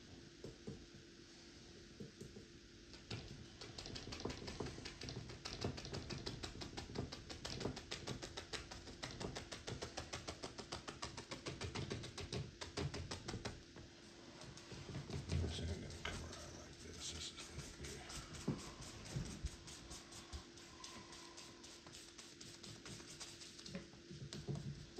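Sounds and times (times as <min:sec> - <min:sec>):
paintbrush tapping on canvas: 0:02.0 - 0:13.6.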